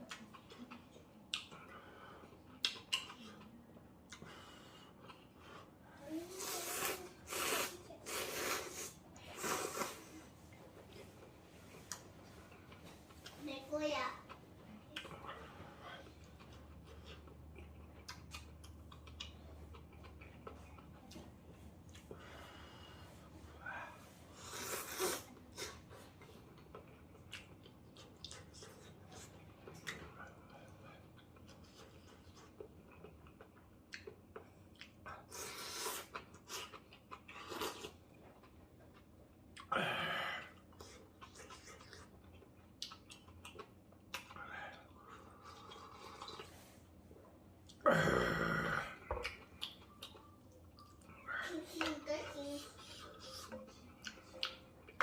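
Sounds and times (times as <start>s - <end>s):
slurping noodles: 6.3s - 10.3s, 24.4s - 25.8s.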